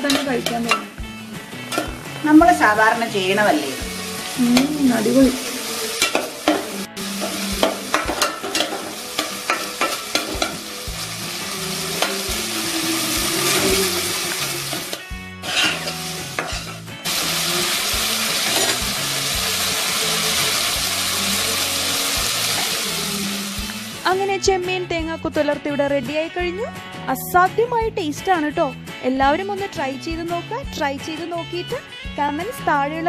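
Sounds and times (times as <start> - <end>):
food sizzling in a frying pan: 0.0 - 24.5
spatula scraping a pan: 6.0 - 10.6, 11.9 - 16.8.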